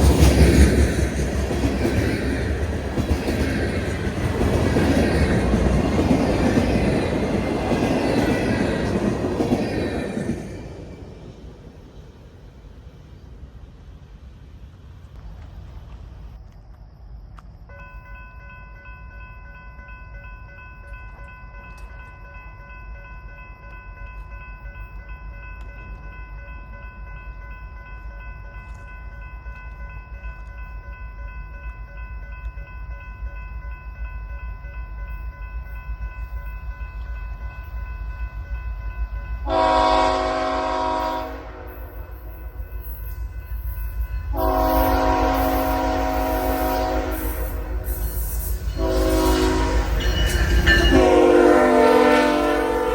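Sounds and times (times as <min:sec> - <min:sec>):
train rumbling: 0:00.0 - 0:52.9
locomotive air horn: 0:39.4 - 0:42.2, 0:44.3 - 0:48.0, 0:48.7 - 0:50.1, 0:50.8 - 0:52.9.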